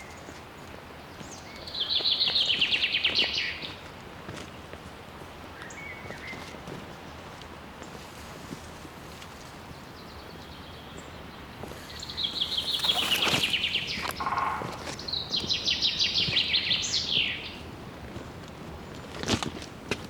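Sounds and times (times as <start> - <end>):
songbird trilling: 9.8 - 17.5.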